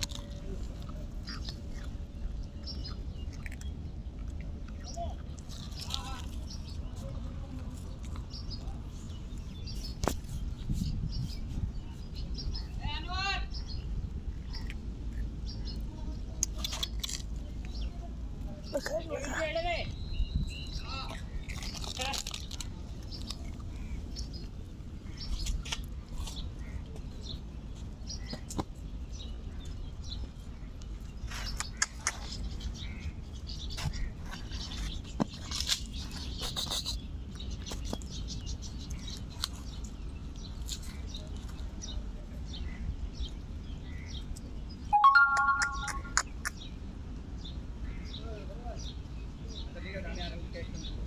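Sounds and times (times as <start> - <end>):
small birds chirping: 0.0 - 51.0
loud flat high tone: 45.0 - 46.2.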